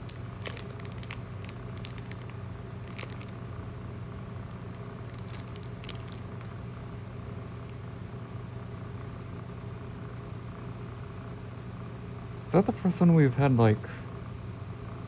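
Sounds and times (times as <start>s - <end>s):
cards and foil wrapper handled: 0.0s - 3.4s, 4.5s - 6.6s
crinkly clicks: 0.0s - 3.4s, 4.5s - 6.6s
steady low hum: 0.0s - 15.0s.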